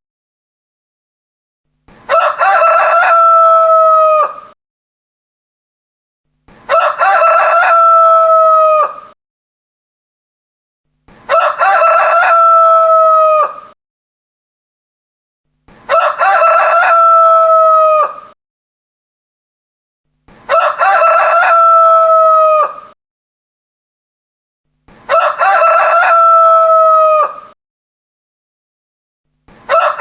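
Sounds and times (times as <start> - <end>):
rooster crowing: 2.1 - 4.6, 6.7 - 9.2, 11.3 - 13.8, 15.9 - 18.4, 20.5 - 23.0, 25.1 - 27.6, 29.7 - 30.0.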